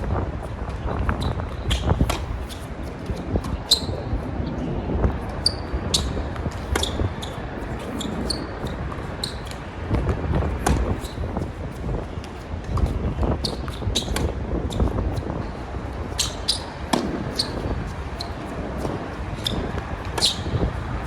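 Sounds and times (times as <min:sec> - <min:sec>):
wind on microphone: 0:00.0 - 0:21.0
tennis balls struck and bouncing: 0:01.6 - 0:03.9, 0:07.8 - 0:11.2, 0:13.5 - 0:14.9, 0:16.2 - 0:17.6.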